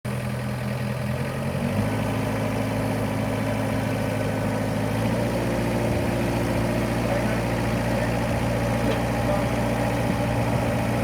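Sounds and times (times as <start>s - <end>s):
diesel tractor engine idling: 0.1s - 11.0s.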